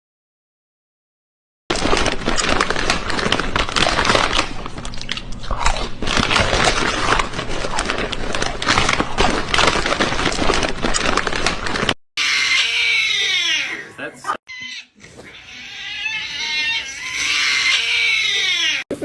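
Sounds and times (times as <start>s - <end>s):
loud crunching and chewing: 1.7s - 13.4s.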